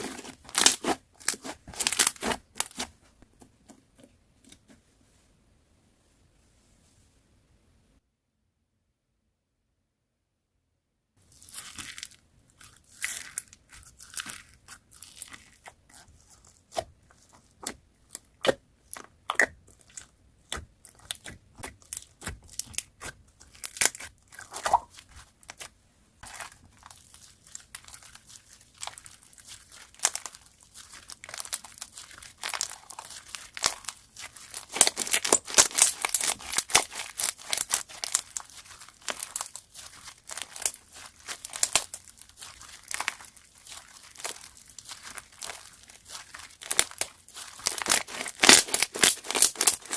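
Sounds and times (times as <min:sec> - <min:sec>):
slime crackling when squeezed: 0:00.0 - 0:02.9, 0:11.4 - 0:16.1, 0:20.9 - 0:49.9.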